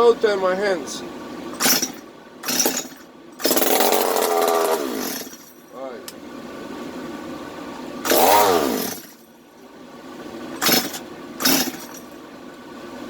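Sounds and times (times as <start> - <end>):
chainsaw engine cranking: 1.6 - 5.7, 8.0 - 9.2, 10.6 - 12.2.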